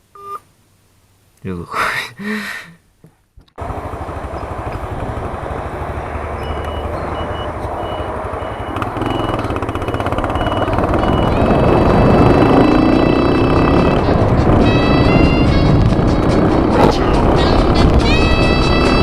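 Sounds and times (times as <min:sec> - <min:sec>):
wind and road rumble: 0:03.0 - 0:19.0
moped engine running: 0:03.6 - 0:19.0
short high beeps: 0:06.4 - 0:11.5.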